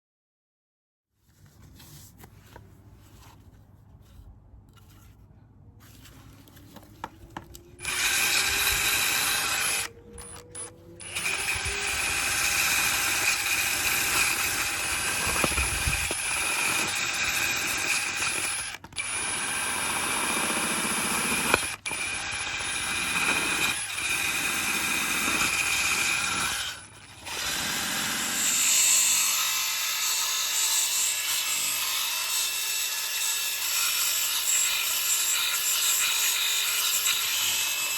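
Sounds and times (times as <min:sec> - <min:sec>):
power tool working wood: 0:07.5 - 0:32.9.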